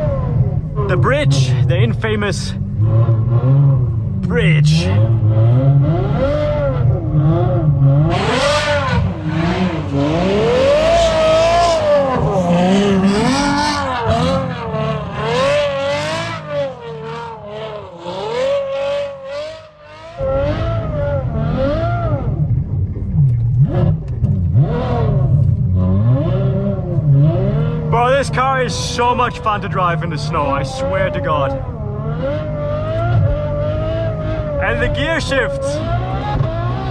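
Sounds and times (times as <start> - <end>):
car engine revving hard: 0.0 - 36.9
wheelspin on snow: 5.7 - 19.2.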